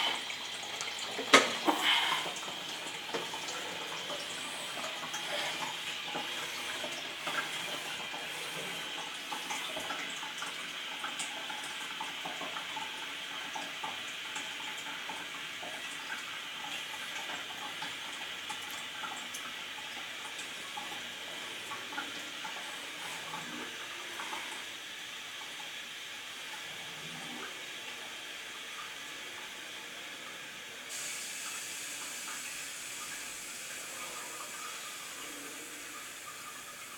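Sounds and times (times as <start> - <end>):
water trickling in toilet: 0.0 - 36.9.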